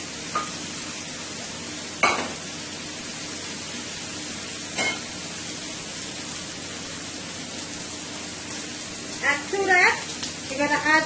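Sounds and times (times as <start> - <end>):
vegetables sizzling in a skillet: 0.0 - 11.0.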